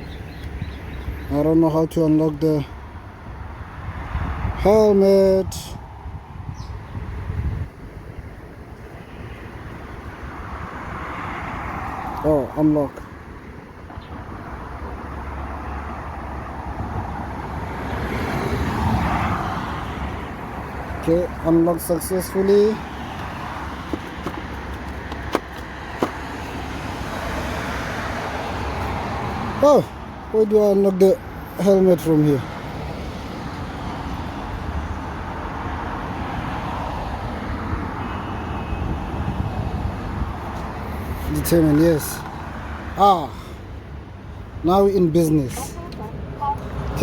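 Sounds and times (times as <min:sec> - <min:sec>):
road traffic rumble: 0:00.0 - 0:47.0
motor vehicle passing: 0:13.2 - 0:29.7, 0:32.3 - 0:47.0.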